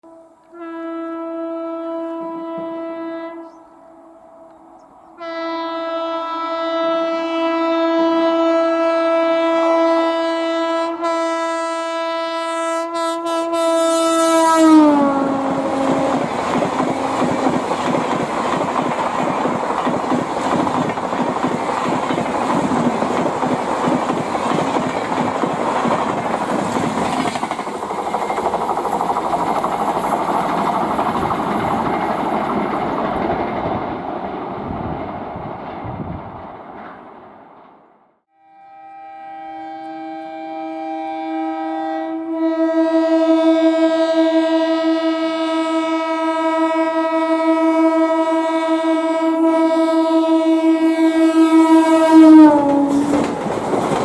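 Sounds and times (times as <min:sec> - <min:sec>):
train horn: 0:00.0 - 0:19.8, 0:38.3 - 0:54.0
train coaches rumbling past: 0:13.0 - 0:38.1, 0:48.3 - 0:54.0.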